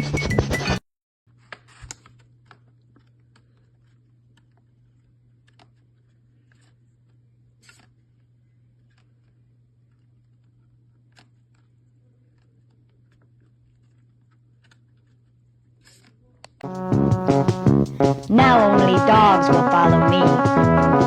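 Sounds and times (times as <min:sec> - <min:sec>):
loud music: 0:16.6 - 0:21.0.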